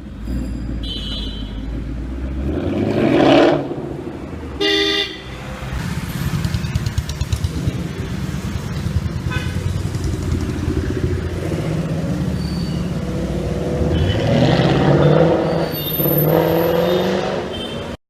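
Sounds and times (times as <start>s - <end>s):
car engine revving: 1.7s - 4.0s, 5.7s - 17.5s.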